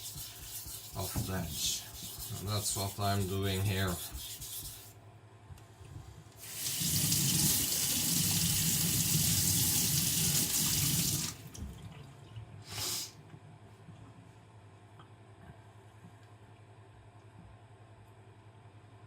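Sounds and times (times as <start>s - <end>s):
water running from a tap: 6.4s - 11.7s.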